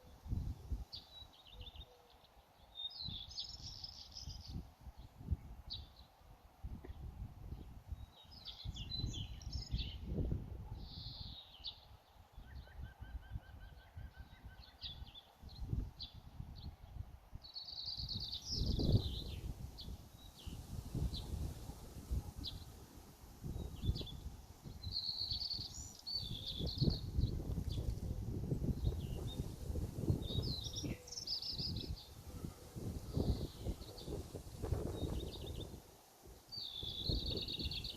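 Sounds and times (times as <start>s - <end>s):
birds chirping and singing: 17.6s - 21.4s, 23.6s - 35.8s, 36.5s - 37.9s.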